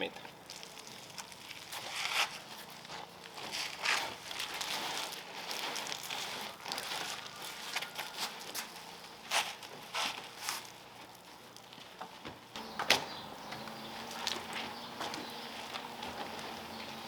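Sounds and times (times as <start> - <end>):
wash mitt wiping car paint: 12.2 - 17.0.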